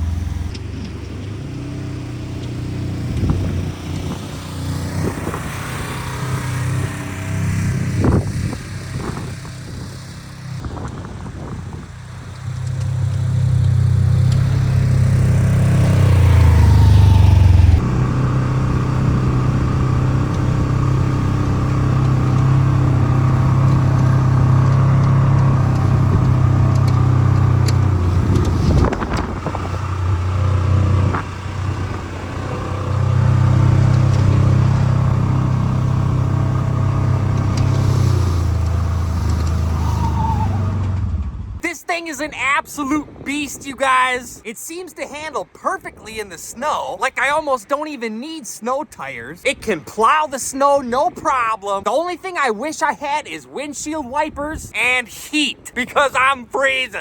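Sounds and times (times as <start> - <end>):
vehicle engine running hard: 0.0 - 41.6.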